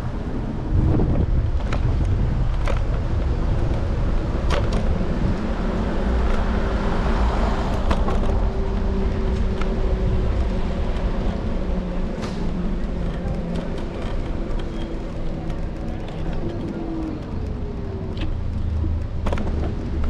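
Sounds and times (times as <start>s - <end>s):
road and wind rumble: 0.0s - 20.0s
vehicles passing: 0.0s - 20.0s
sharp clicks and rattles: 13.0s - 20.0s.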